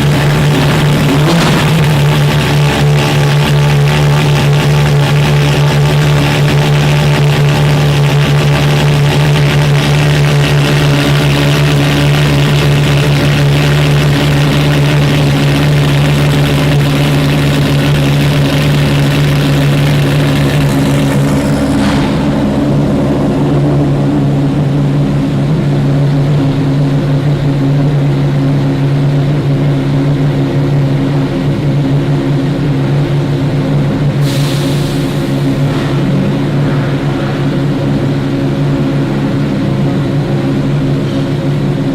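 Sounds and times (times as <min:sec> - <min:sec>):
car engine running loud: 0:00.0 - 0:41.9.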